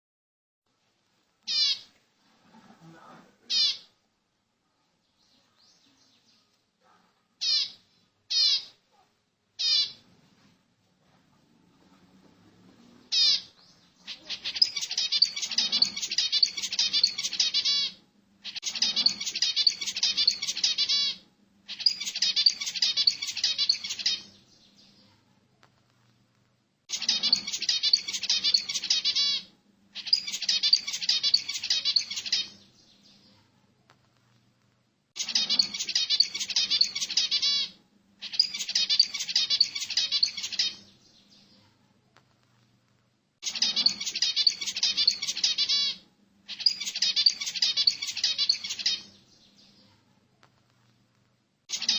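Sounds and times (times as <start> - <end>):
songbird rapid high chirping: 13.1 - 25.2, 26.9 - 33.4, 35.2 - 41.7, 43.4 - 49.9.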